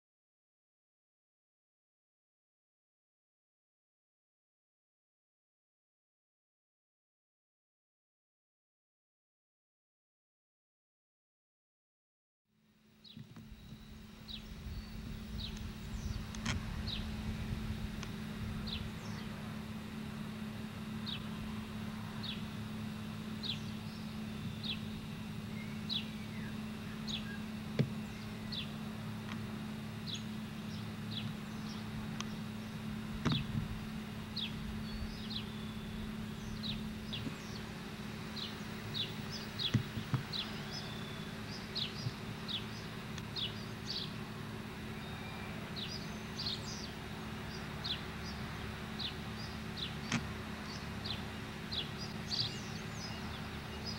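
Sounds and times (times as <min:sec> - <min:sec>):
steady low hum: 0:12.6 - 0:53.9.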